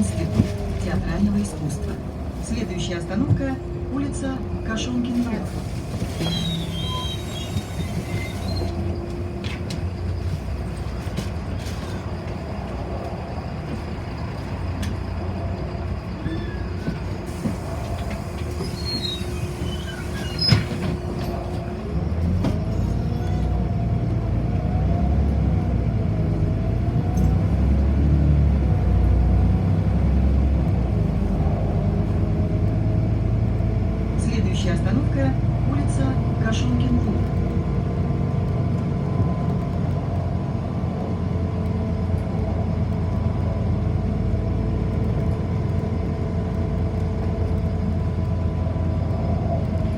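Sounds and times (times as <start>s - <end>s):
bus engine rumble: 0.0s - 49.9s.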